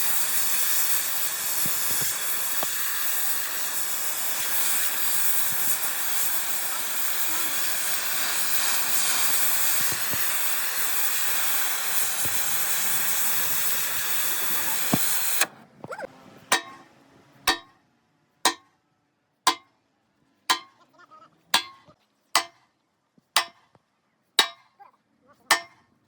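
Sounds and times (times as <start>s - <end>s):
steady hiss: 0.0s - 15.5s.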